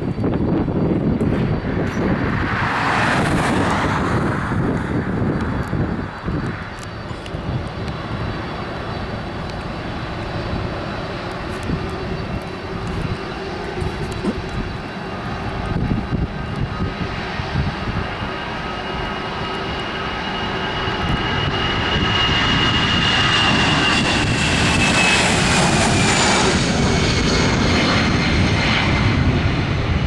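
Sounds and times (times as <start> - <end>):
jet engines rumbling and whining: 0.0 - 30.0.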